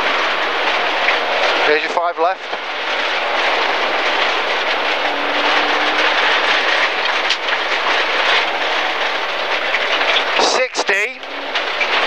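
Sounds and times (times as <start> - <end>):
car engine: 0.0 - 12.0
tyre and gravel noise: 0.0 - 12.0.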